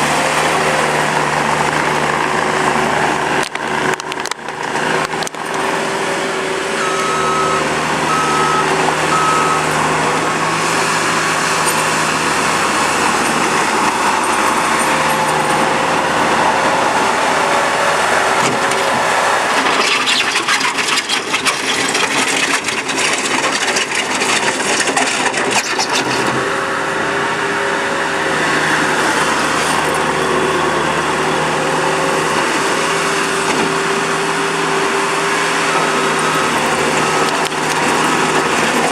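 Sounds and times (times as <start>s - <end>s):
diesel engine under load: 0.0s - 38.9s
reversing alarm beeping: 6.8s - 9.9s, 35.5s - 38.7s.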